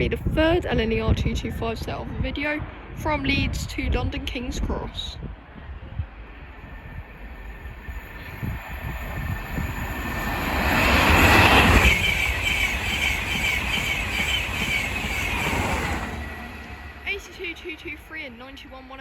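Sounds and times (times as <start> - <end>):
train passing through station: 2.4 - 19.0
high whine: 5.6 - 18.1.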